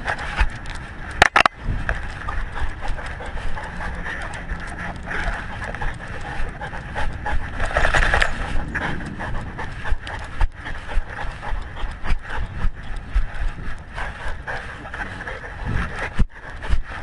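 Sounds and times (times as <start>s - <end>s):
camera bumping and rubbing: 0.0s - 2.3s
dog panting: 0.0s - 17.0s.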